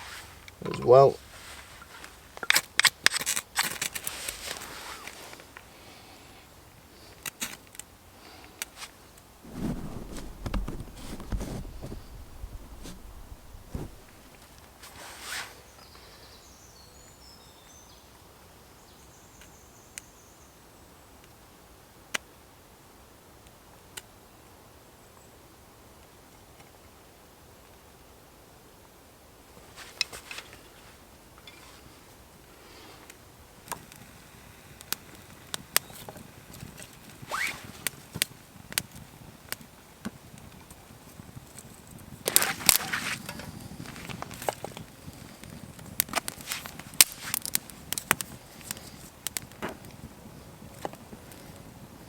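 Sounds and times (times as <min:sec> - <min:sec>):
campfire crackling and snapping: 0:09.4 - 0:14.7, 0:41.4 - 0:51.4.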